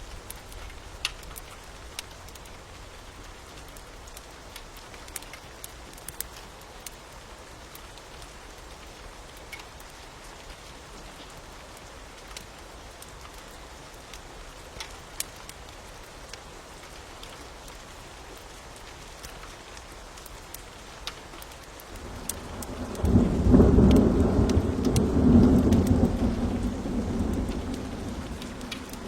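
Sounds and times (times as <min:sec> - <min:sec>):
rain hiss: 0:00.0 - 0:29.0
wood fire crackling: 0:00.0 - 0:29.0.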